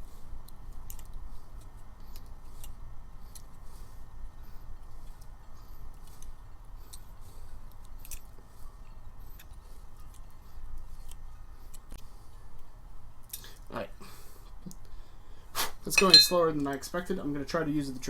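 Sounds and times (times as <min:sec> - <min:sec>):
hand tools clinking on metal: 0:15.9 - 0:16.5.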